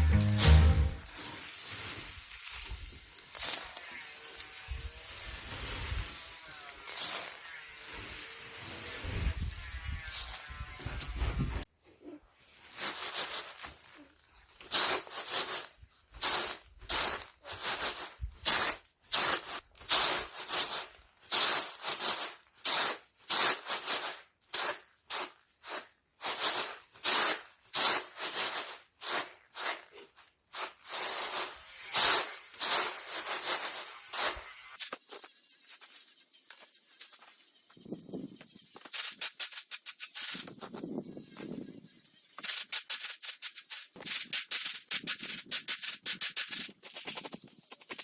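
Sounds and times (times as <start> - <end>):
beans rustling in swishing strokes: 0.0 - 8.0, 12.3 - 41.7.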